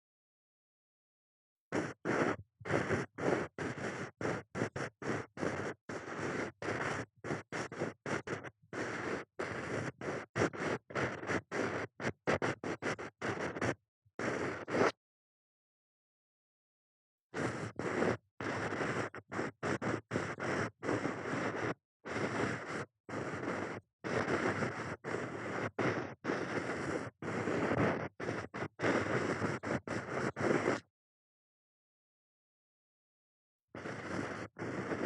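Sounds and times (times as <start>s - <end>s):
ear pick scratching microphone: 1.7s - 15.0s, 17.4s - 30.9s, 33.8s - 35.0s.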